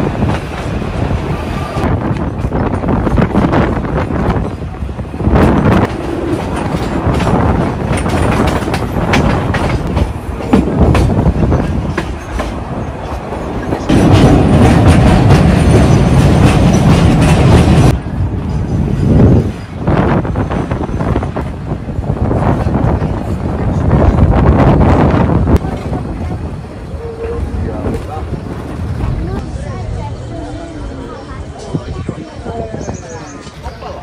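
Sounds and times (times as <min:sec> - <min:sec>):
train rumble: 0:00.0 - 0:34.0
train wheels clacking: 0:01.7 - 0:21.5.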